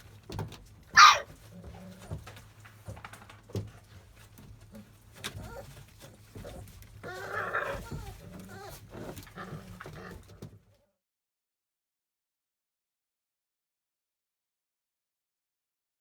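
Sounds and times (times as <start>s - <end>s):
paws scrabbling: 0.2s - 10.6s
puppy whining: 1.0s - 2.2s, 5.1s - 10.3s.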